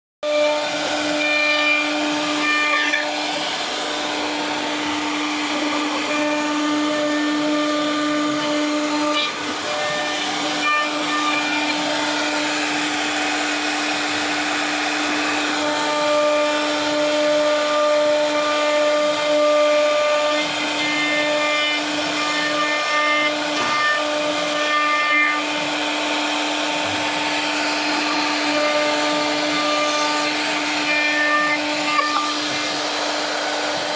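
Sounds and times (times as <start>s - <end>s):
router spindle whine cutting wood: 0.2s - 33.9s
higher motor tones: 0.5s - 15.8s.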